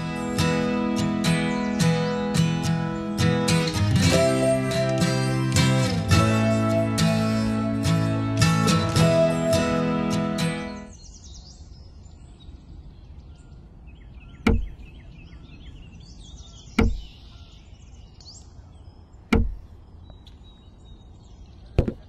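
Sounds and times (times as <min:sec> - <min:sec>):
faint bird chirping: 0:00.0 - 0:22.0
clay bricks thudding onto sand: 0:19.3 - 0:19.7.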